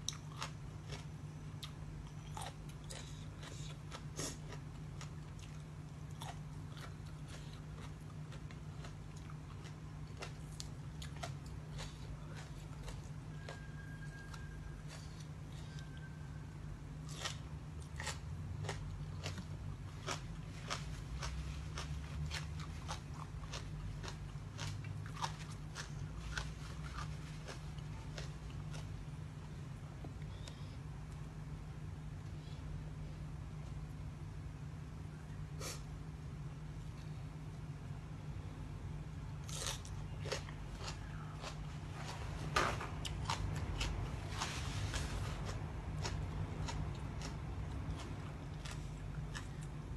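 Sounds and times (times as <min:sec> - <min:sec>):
person chewing crunchy food: 0:00.0 - 0:16.1, 0:17.0 - 0:29.6, 0:39.3 - 0:49.9
low steady hum: 0:00.0 - 0:49.9.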